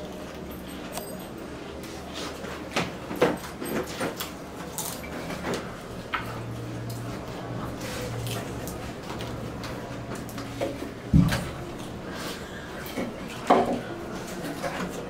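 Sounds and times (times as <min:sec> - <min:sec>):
low steady hum: 0:00.0 - 0:15.0
potato chips crunching: 0:04.6 - 0:05.3.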